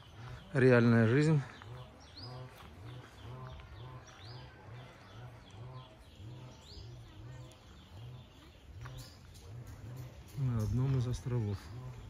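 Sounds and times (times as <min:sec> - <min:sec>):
birds chirping and calling: 0:00.0 - 0:12.0
low pulsing sound: 0:00.0 - 0:12.0.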